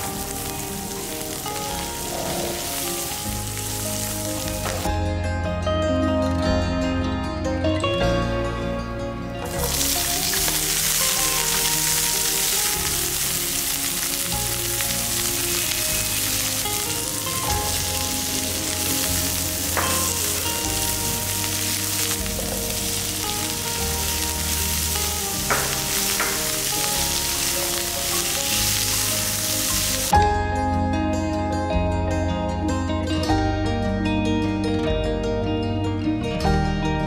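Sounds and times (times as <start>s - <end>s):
food sizzling in oil: 0.0s - 4.9s, 9.4s - 30.1s
soft background music: 0.0s - 37.0s.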